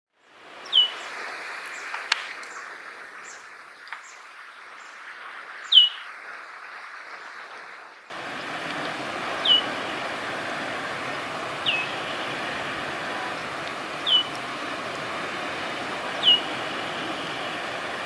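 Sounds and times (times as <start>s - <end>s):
background hiss: 0.2s - 6.1s, 8.1s - 18.0s
faint bird chirps: 0.6s - 2.7s, 9.2s - 17.7s
linnet calls sliding down: 0.6s - 2.7s, 8.1s - 18.0s.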